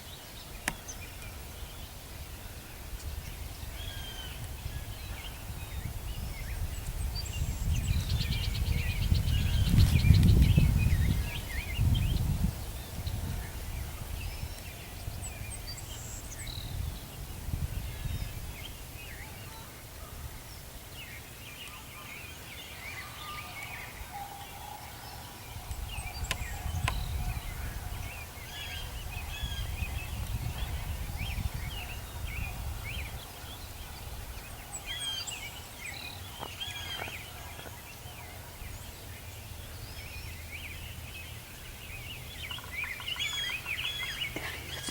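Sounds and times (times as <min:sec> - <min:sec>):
songbirds chirping: 0:00.0 - 0:44.9.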